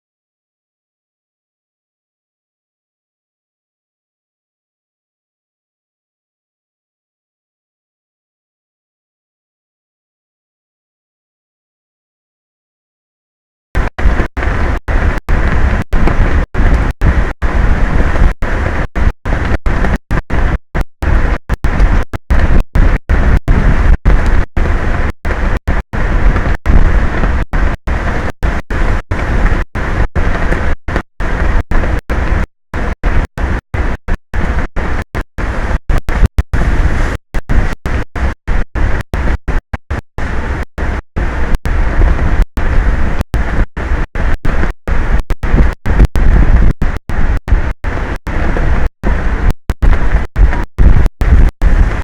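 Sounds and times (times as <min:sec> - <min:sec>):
strong wind on microphone: 0:13.8 - 0:52.0.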